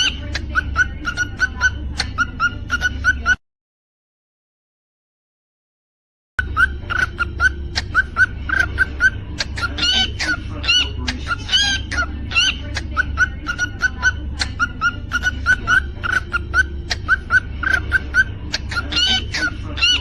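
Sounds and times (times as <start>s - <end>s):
cockatiel chirping: 0.0s - 3.4s, 6.4s - 20.0s
steady low hum: 6.4s - 20.0s.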